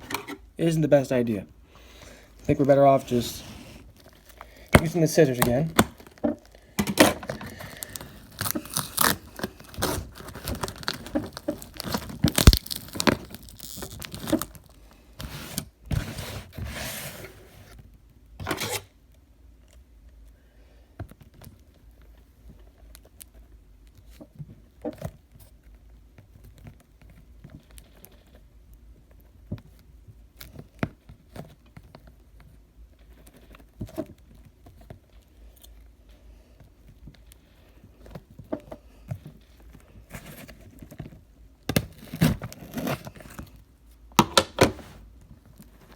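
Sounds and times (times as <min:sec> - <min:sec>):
packaging crinkling: 0:02.4 - 0:15.7
scissors cutting packaging: 0:06.9 - 0:14.8.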